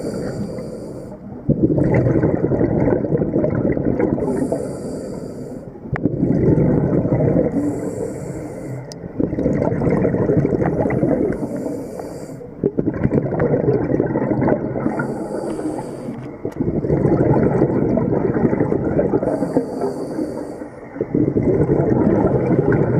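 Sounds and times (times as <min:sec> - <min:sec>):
diver inhaling through regulator: 0:00.0 - 0:01.3, 0:04.2 - 0:05.7, 0:07.5 - 0:09.0, 0:10.6 - 0:12.6, 0:14.8 - 0:16.4, 0:19.1 - 0:20.8
exhaled bubbles rushing: 0:01.5 - 0:04.5, 0:06.0 - 0:07.8, 0:09.0 - 0:11.7, 0:12.5 - 0:19.7, 0:20.9 - 0:22.9.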